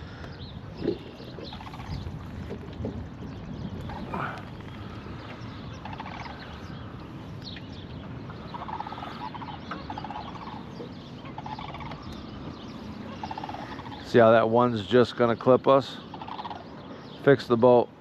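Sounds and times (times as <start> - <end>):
low background rumble: 0.0 - 17.2
fast-rattling animal calls: 1.4 - 2.0, 5.8 - 6.5, 8.4 - 12.2, 13.1 - 14.1, 16.0 - 16.7.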